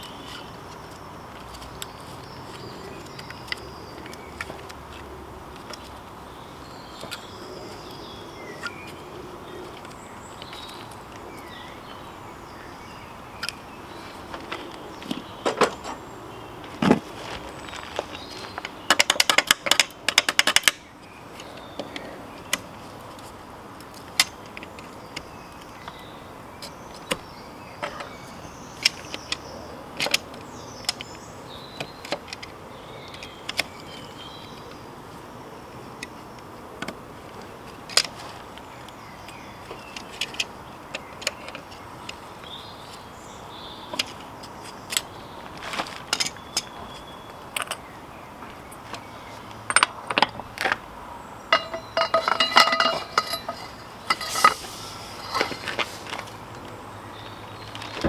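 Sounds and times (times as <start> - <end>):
steady background hiss: 50.9 - 58.0.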